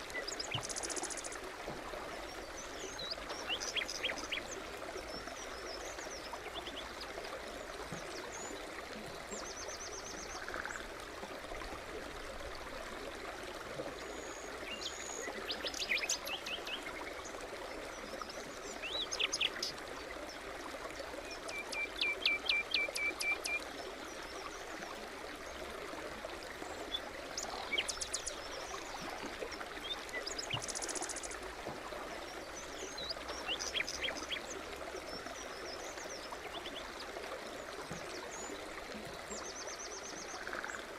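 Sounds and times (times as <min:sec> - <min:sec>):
songbirds calling and trilling: 0:00.0 - 0:01.5, 0:02.2 - 0:10.9, 0:13.9 - 0:20.5, 0:21.2 - 0:24.8, 0:26.6 - 0:40.9
stream babbling: 0:00.0 - 0:40.9.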